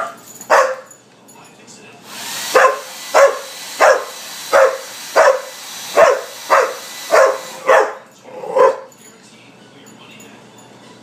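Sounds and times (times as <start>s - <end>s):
dog barking: 0.0s - 0.9s, 2.5s - 9.0s
hair dryer running: 2.0s - 8.0s.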